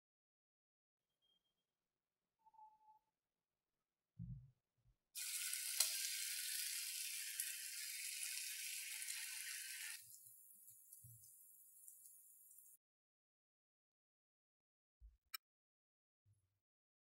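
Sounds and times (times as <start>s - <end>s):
chicken sizzling in a pan: 5.2s - 12.8s.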